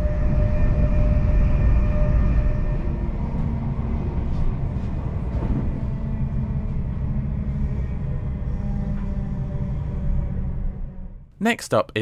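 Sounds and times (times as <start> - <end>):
train wheels rumbling on track: 0.0 - 9.2
low hum: 0.0 - 11.3.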